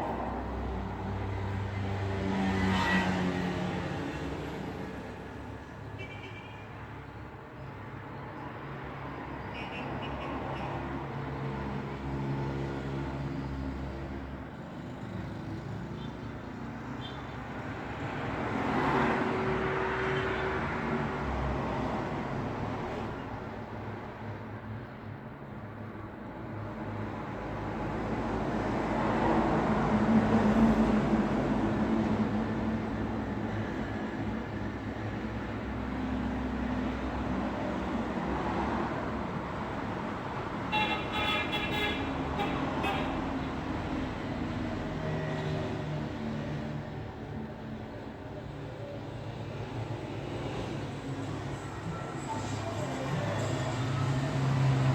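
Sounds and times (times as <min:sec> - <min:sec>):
car passing by: 0:00.0 - 0:05.2, 0:49.7 - 0:54.9
road traffic rumble: 0:00.0 - 0:06.2, 0:06.8 - 0:54.9
vehicle horn toots: 0:40.7 - 0:43.2.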